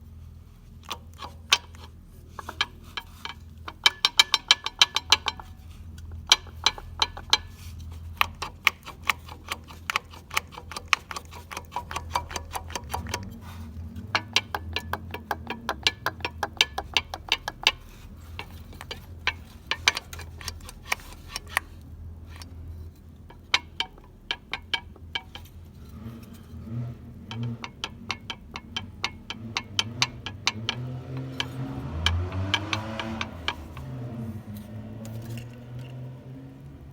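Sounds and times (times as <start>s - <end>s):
diesel engine humming: 0.0s - 36.9s
rapid metallic clicking: 0.8s - 36.0s.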